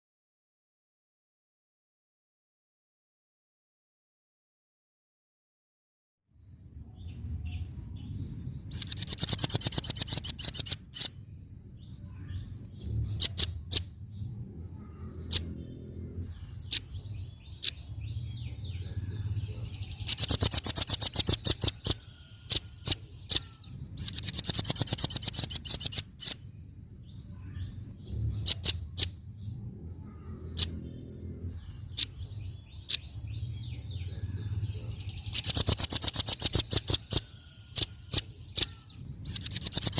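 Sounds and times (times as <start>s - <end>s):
bird trilling and calling: 8.7s - 39.9s.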